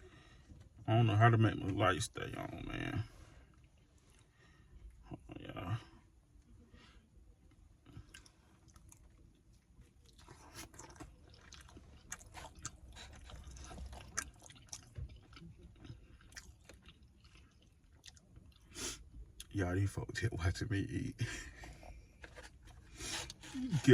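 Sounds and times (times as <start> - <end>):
person chewing food: 7.5 - 19.5.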